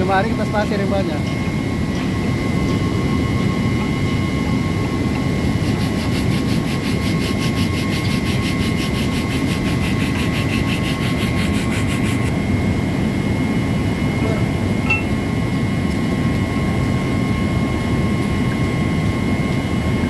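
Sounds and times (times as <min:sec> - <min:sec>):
machine rumble with thin whine: 0:00.0 - 0:20.0
rhythmic rasping scrape: 0:05.6 - 0:12.3.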